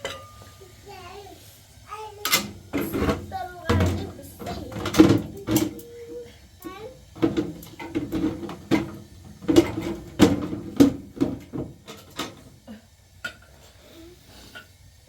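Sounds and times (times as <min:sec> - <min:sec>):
pots and utensils clattering: 0:00.0 - 0:00.7, 0:02.2 - 0:06.0, 0:07.1 - 0:13.8.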